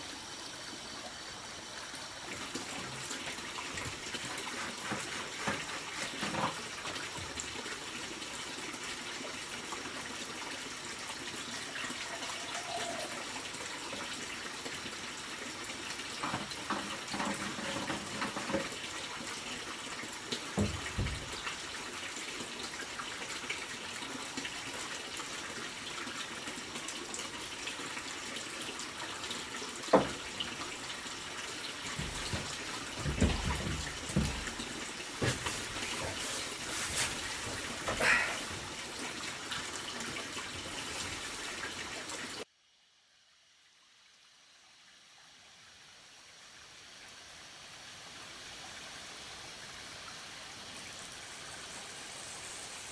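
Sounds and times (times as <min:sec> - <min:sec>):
running water: 0:00.0 - 0:42.5
knocks and low thumps: 0:31.9 - 0:35.6.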